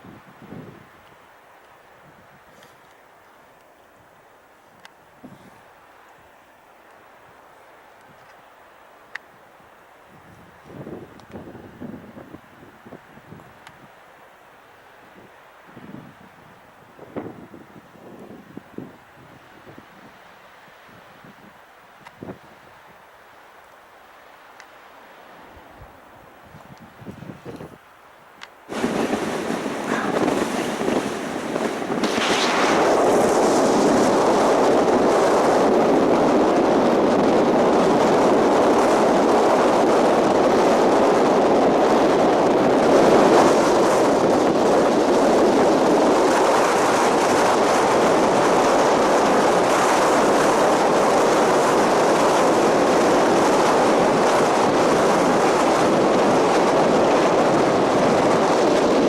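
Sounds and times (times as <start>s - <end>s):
strong wind on microphone: 0.0s - 1.0s, 4.7s - 5.7s, 10.1s - 13.9s, 15.0s - 20.3s, 20.9s - 23.0s, 25.5s - 27.8s, 28.7s - 59.0s.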